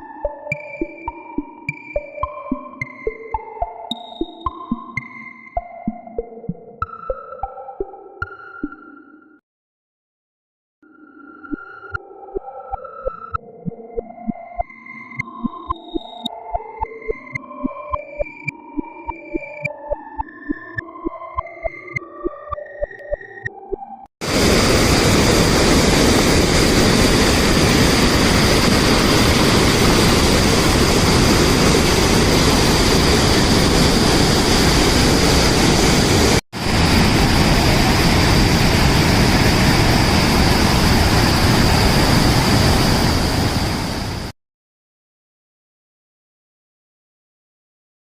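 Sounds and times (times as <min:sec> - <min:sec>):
waterfall rushing: 0:24.2 - 0:44.3.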